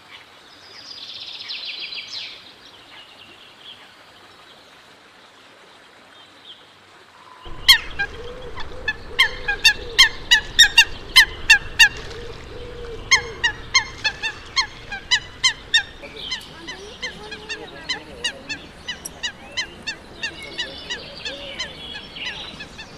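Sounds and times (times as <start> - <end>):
steady background rush: 7.5 - 22.9
water bird honking: 7.5 - 22.9.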